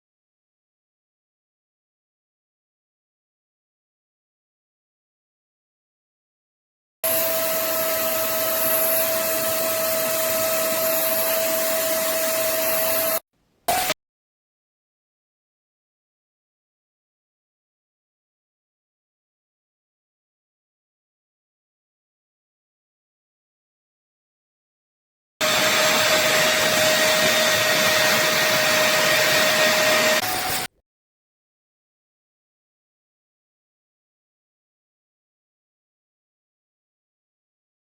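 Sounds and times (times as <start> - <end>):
spot cleaner suction motor whine: 7.0 - 13.9, 25.4 - 30.7.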